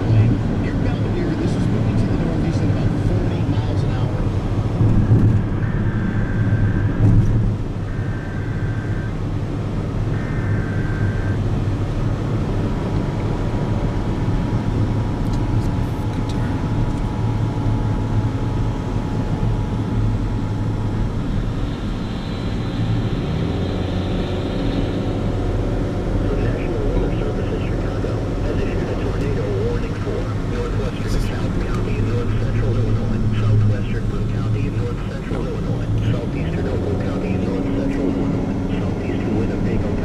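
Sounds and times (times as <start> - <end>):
long steady attention tone: 0.0 - 40.0
steady low rumble: 0.0 - 40.0
warbling data burst tones: 3.5 - 11.5, 18.8 - 40.0.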